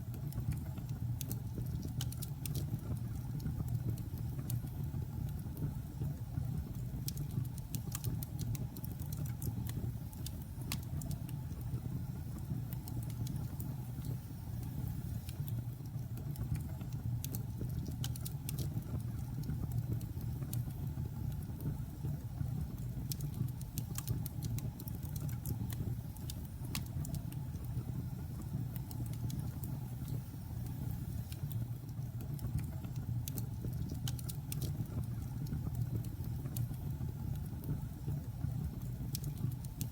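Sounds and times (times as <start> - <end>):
logs crackling and popping: 15.2 - 21.7, 23.0 - 27.7, 31.3 - 37.8.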